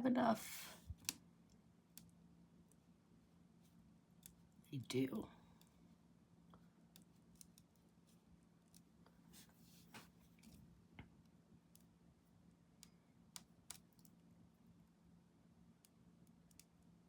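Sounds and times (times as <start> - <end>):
low steady hum: 0.0 - 17.0
light scratchy rustle: 9.2 - 10.6.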